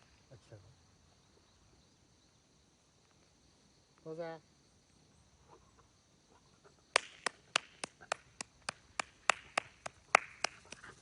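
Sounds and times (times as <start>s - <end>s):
hands clapping: 6.9s - 11.0s.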